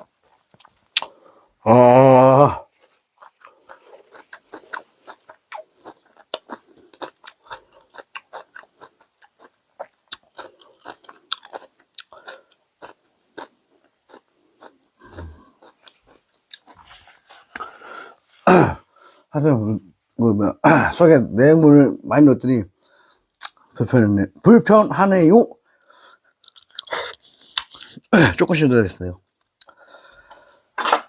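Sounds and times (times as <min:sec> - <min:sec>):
man chewing food: 0:00.0 - 0:01.6, 0:02.7 - 0:19.2, 0:25.6 - 0:28.1, 0:29.3 - 0:31.0.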